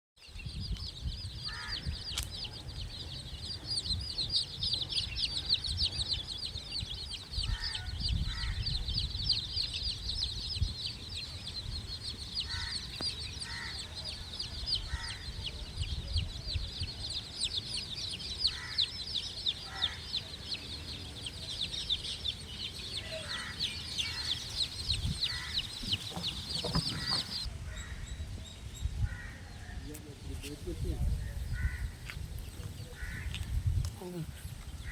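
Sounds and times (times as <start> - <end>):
chicks peeping: 0.2 - 27.5
hen clucking: 17.5 - 27.5.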